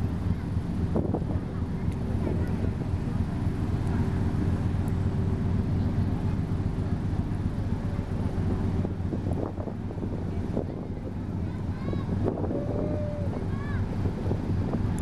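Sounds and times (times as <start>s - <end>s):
wind noise on microphone: 0.0s - 3.4s, 8.1s - 15.0s
ship engines droning: 0.0s - 15.0s.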